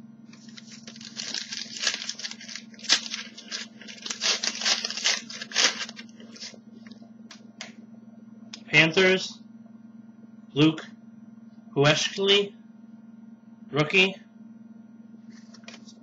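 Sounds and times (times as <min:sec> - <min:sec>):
steady low hum: 0:00.0 - 0:16.0
trading cards sliding and rustling: 0:00.4 - 0:06.6.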